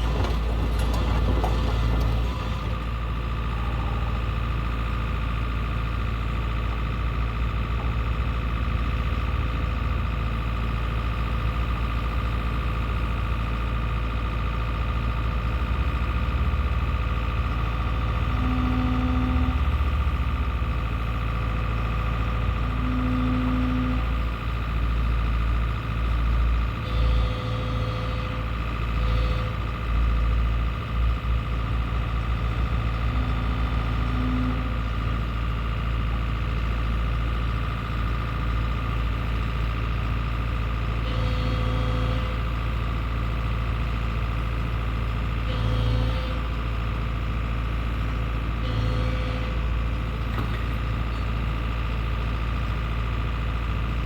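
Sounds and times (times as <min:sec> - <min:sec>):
scraping and clatter: 0:00.0 - 0:02.8
excavator diesel engine running: 0:00.0 - 0:54.0.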